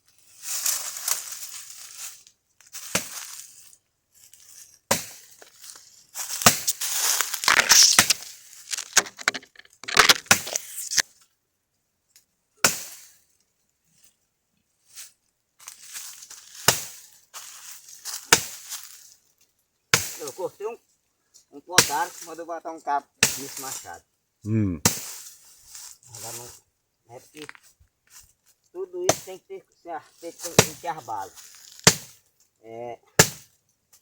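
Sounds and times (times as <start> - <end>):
dry wood cracking and crunching: 5.4 - 11.0.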